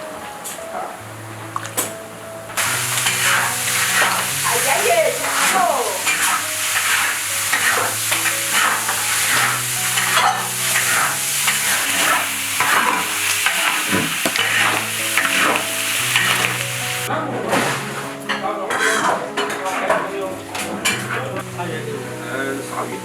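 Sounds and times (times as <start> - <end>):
spatula scraping a wok: 2.6 - 18.1, 18.7 - 19.2
food sizzling in a wok: 2.6 - 18.2.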